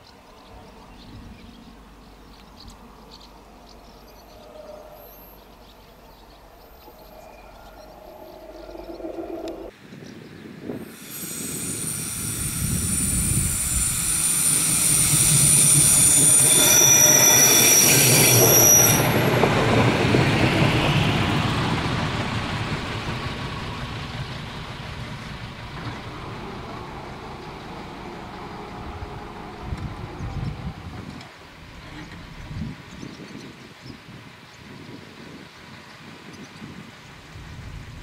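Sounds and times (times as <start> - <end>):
railcar rumbling past: 0.0 - 9.7, 10.8 - 33.0
high-pitched wheel squeal: 10.8 - 19.6.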